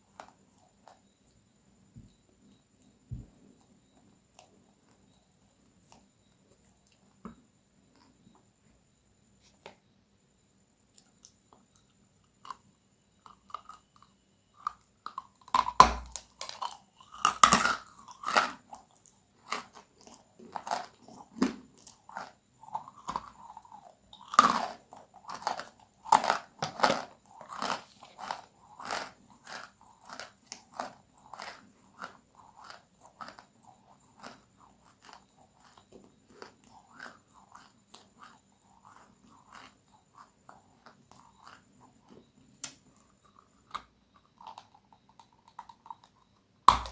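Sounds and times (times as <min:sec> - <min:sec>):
person chewing crunchy food: 0:13.2 - 0:46.1, 0:46.7 - 0:46.9.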